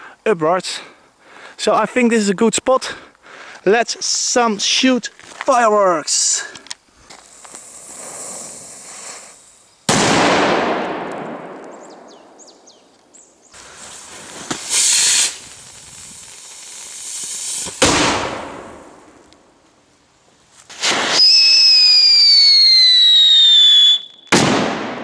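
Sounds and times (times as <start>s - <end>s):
fireworks hissing: 2.9s - 24.6s
fireworks loud bang: 9.9s - 12.4s, 13.6s - 19.2s, 20.7s - 21.5s, 24.3s - 25.0s.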